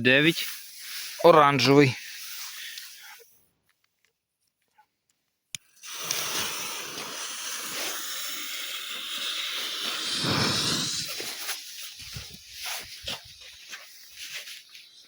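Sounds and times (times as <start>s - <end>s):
smoke firework hissing: 0.2s - 3.2s, 5.6s - 15.0s.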